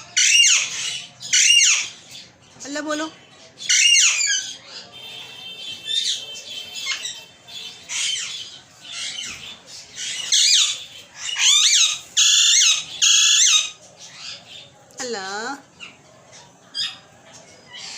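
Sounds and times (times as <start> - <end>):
parrot squawking: 0.0 - 2.1, 3.6 - 14.5.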